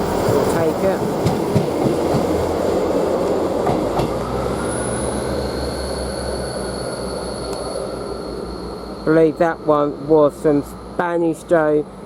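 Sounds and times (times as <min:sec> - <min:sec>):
train engine hum: 0:00.0 - 0:12.0
high-pitched wheel squeal: 0:04.5 - 0:10.1.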